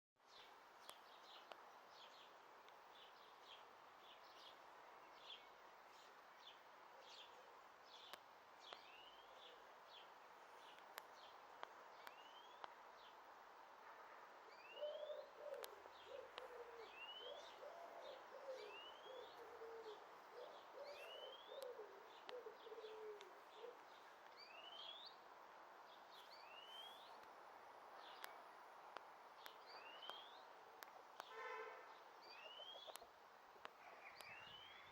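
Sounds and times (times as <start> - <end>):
bird cooing: 14.6 - 24.9.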